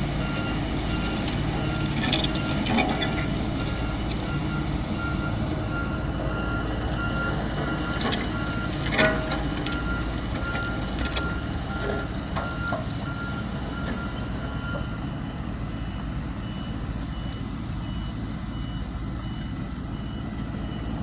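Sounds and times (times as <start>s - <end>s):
bulldozer engines rumbling: 0.0s - 21.0s
low-pitched reversing alarm: 0.0s - 21.0s.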